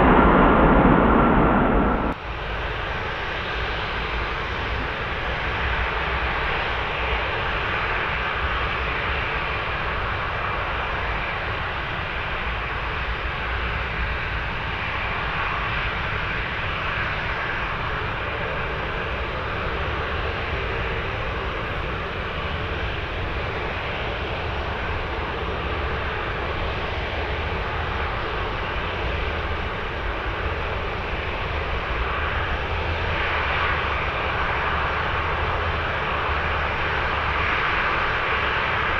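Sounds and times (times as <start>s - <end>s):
faint engine whine: 0.0s - 7.4s
jet engines rushing: 0.0s - 7.8s.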